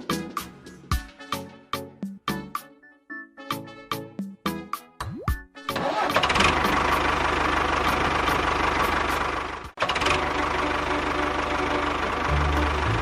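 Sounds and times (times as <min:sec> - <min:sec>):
tractor engine running: 0:05.7 - 0:13.0.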